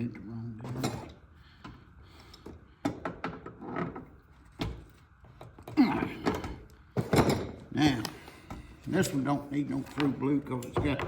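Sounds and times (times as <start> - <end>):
knocks and clunks of tools: 9.9 - 11.0.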